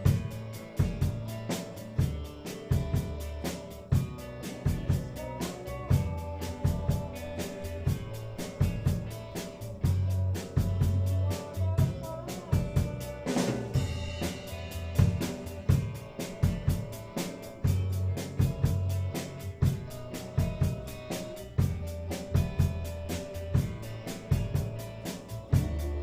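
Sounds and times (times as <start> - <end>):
band playing: 0.0 - 26.0
drum kit beat: 0.0 - 26.0.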